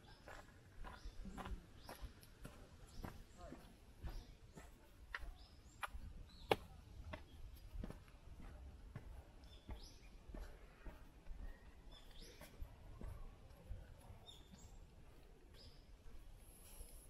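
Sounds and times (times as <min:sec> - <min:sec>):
faint footsteps on wet path: 0:00.0 - 0:17.0.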